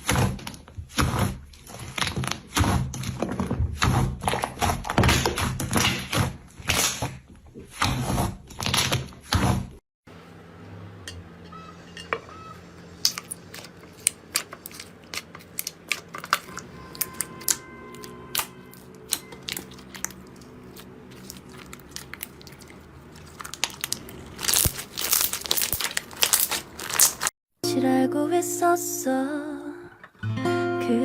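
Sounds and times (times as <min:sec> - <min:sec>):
slime clicking and crackling: 0:13.0 - 0:27.3.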